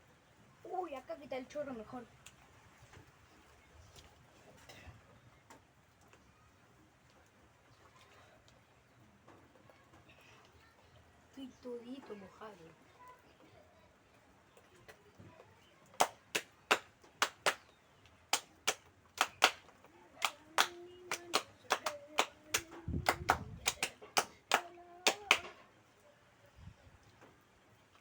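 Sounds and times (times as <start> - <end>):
sharp claps or slaps: 16.0 - 17.7, 18.3 - 25.6.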